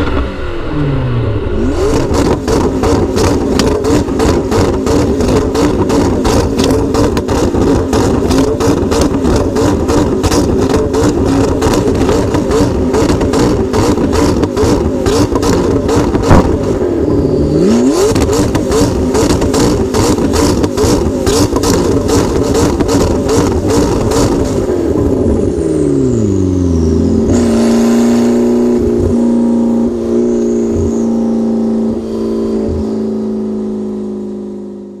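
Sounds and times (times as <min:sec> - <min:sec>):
car engine revving hard: 0:00.0 - 0:35.0
exhaust pops crackling: 0:01.9 - 0:16.8, 0:18.1 - 0:25.2
loud exhaust bang: 0:15.3 - 0:16.8.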